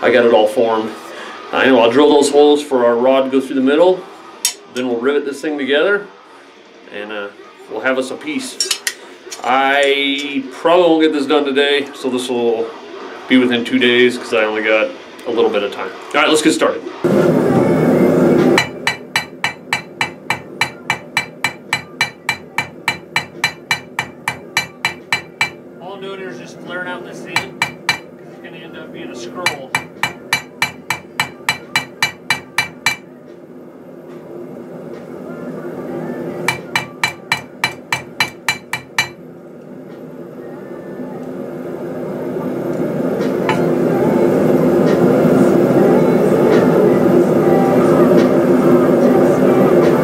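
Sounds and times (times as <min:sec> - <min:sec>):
hammer striking metal on anvil: 0:04.4 - 0:04.7, 0:18.5 - 0:25.6, 0:27.4 - 0:28.2, 0:29.4 - 0:33.1, 0:36.5 - 0:39.2, 0:43.4 - 0:43.8.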